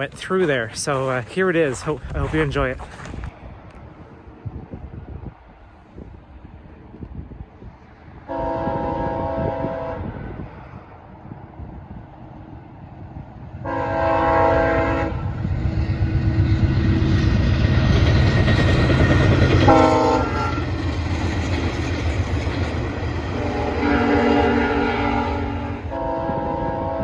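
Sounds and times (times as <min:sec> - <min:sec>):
train rumble and clatter: 0:00.0 - 0:27.0
train horn: 0:08.3 - 0:10.3, 0:13.6 - 0:15.4, 0:19.6 - 0:20.7, 0:23.3 - 0:27.0.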